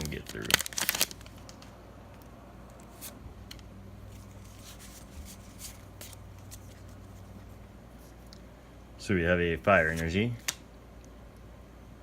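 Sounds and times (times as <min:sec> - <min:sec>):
trading cards rustling: 0:00.0 - 0:01.7, 0:02.7 - 0:08.2
low steady hum: 0:00.0 - 0:12.0.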